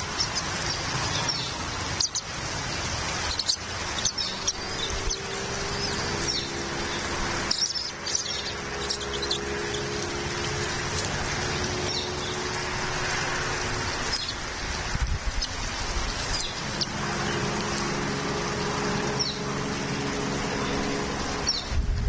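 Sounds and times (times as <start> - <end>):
rushing outdoor background: 0.0 - 22.0
low hum: 3.8 - 22.0.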